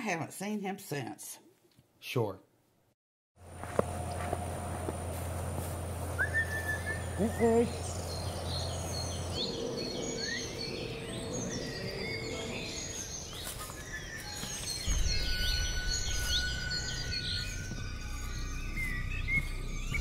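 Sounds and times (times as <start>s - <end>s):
low dark music drone: 3.4s - 20.0s
small birds chirping: 6.0s - 20.0s.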